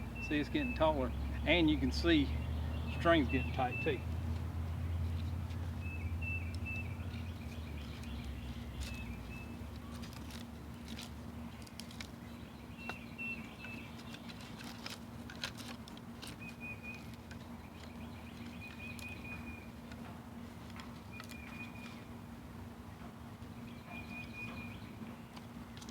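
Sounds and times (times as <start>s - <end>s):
bird chirping: 0.0s - 15.0s, 16.2s - 20.1s, 20.7s - 22.2s, 23.4s - 25.9s
faint steady hum: 0.0s - 25.9s
wooden sticks clicking: 25.3s - 25.9s.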